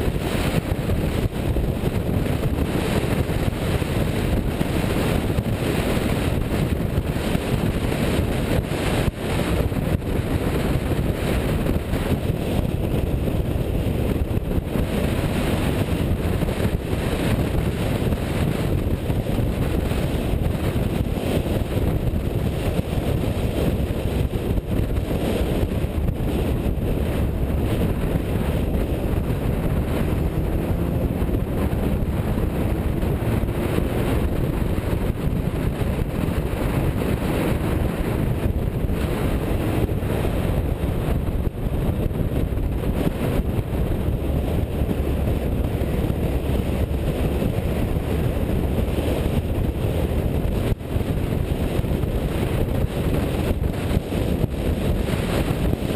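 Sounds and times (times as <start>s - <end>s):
car engine and road noise: 0.0s - 55.9s
wind buffeting microphone: 0.0s - 55.9s.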